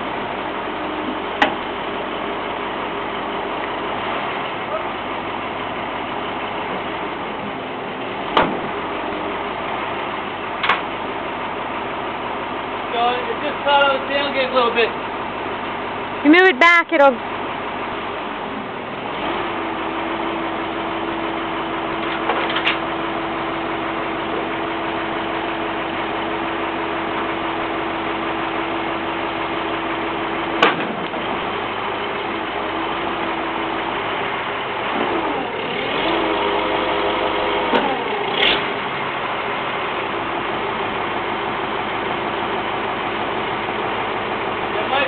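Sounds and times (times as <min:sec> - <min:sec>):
sharp knocks: 0:08.4 - 0:08.7.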